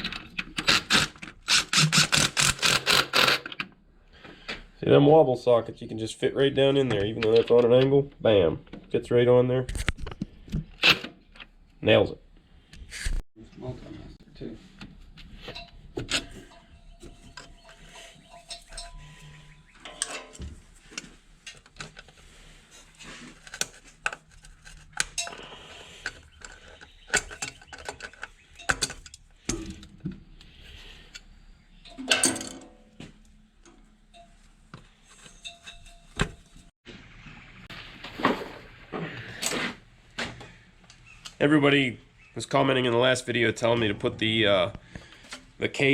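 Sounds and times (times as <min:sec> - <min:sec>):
ratchet clicking on bolt: 0:00.6 - 0:03.6
metallic tool clinks and knocks: 0:15.5 - 0:20.5.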